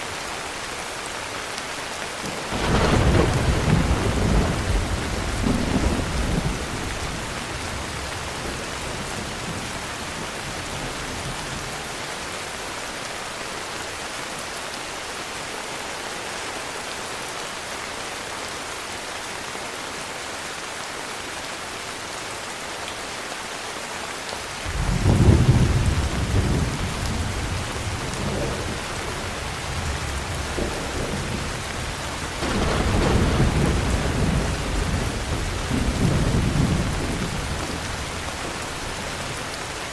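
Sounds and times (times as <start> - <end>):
heavy rain falling: 0.0 - 39.9
rolling thunder: 2.5 - 11.8, 24.7 - 39.8.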